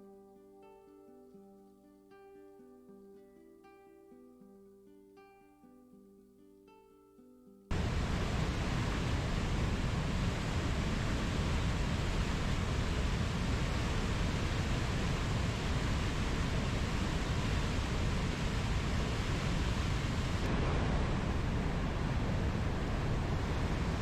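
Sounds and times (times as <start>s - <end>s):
steady low rushing noise: 7.7s - 24.0s.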